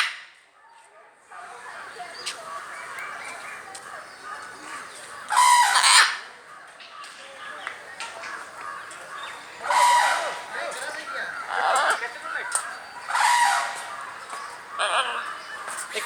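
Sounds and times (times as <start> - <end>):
parrot squawking harshly: 5.3 - 6.2, 9.6 - 12.0, 13.0 - 14.0, 14.7 - 15.4.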